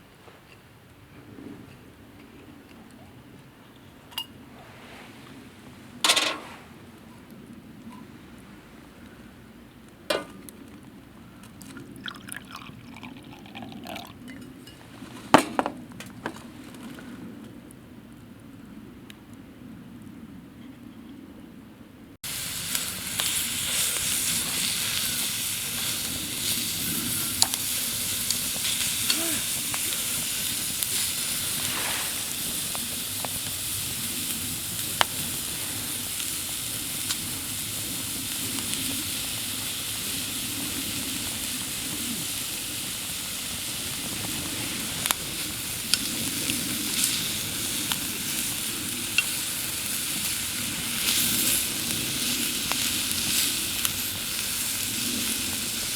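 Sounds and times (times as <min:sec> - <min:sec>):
meat sizzling in a pan: 0:22.2 - 0:55.9.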